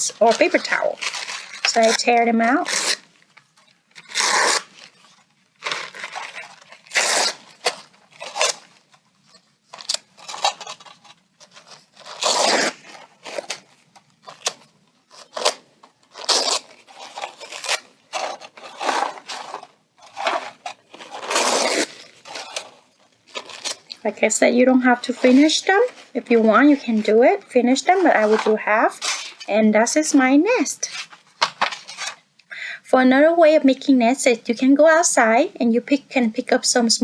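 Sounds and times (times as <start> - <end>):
paper towel tearing: 4.0 - 5.0, 5.7 - 8.7, 11.8 - 13.7, 15.2 - 22.8.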